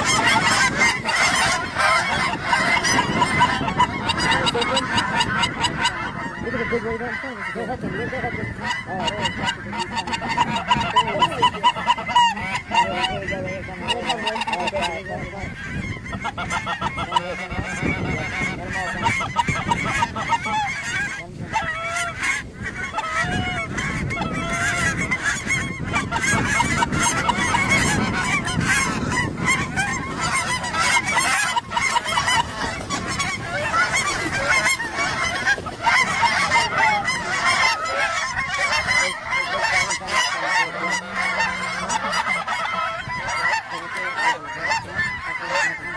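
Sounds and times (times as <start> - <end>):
geese honking: 0.0 - 45.9.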